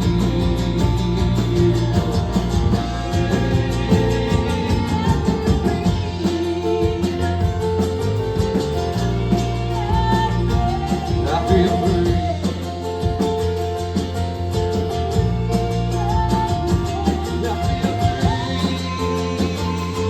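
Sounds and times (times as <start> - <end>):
bass guitar: 0.0 - 20.0
electric guitar bending notes: 0.0 - 20.0
steady drum beat: 0.0 - 20.0.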